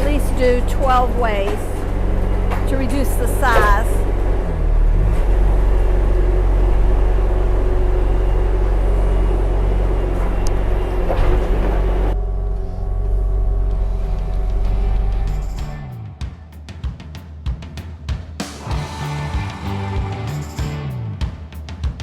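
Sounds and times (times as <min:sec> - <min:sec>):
hydraulic log splitter: 0:00.0 - 0:15.4
diesel engine running: 0:00.0 - 0:16.2, 0:18.6 - 0:21.2.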